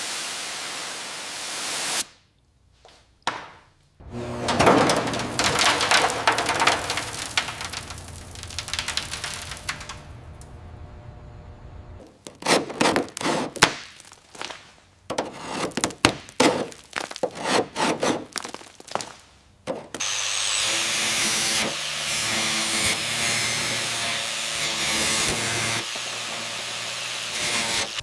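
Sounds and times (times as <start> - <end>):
power tool running: 4.0 - 12.0, 20.0 - 28.0
hand tool scraping: 4.2 - 10.0, 12.0 - 13.7, 15.1 - 18.6.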